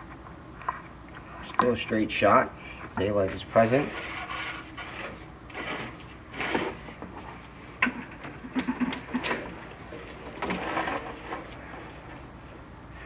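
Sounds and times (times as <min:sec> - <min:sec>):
camera scraping against flue: 0:03.7 - 0:07.4.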